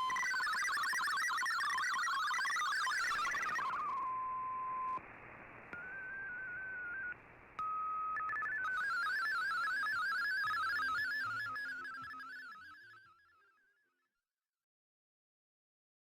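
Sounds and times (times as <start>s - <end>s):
warbling digital data tones: 0.1s - 4.0s, 8.1s - 12.8s.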